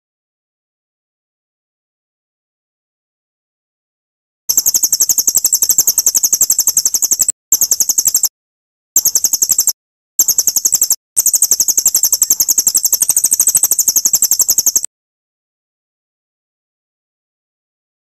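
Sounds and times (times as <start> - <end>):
songbird high-pitched trill: 4.5 - 8.3, 9.0 - 14.9.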